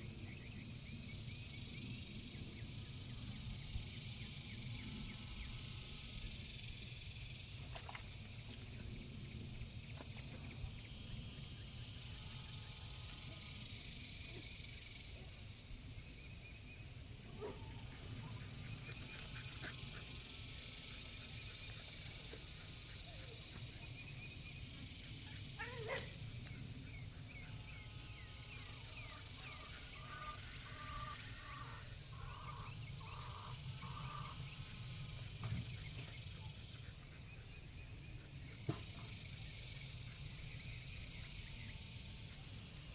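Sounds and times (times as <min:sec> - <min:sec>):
birds chirping: 0:16.2 - 0:38.7.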